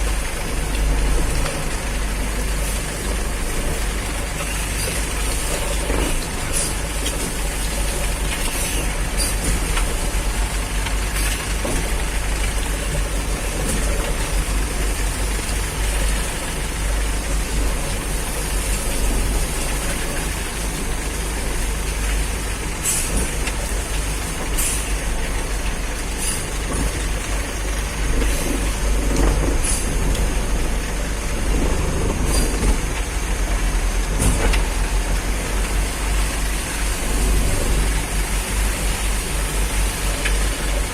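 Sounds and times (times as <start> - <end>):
heavy vehicle engine rumbling: 0.0 - 40.9.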